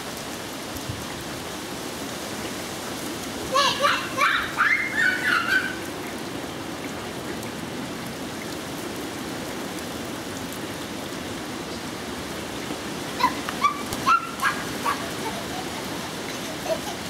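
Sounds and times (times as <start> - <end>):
steady rain falling: 0.0 - 17.0
dog yipping: 3.7 - 5.8, 13.2 - 15.8.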